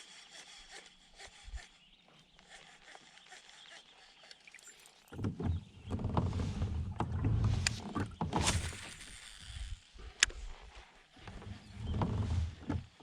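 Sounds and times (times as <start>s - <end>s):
knocks and bumps in a kayak: 5.1s - 8.7s, 11.2s - 13.0s.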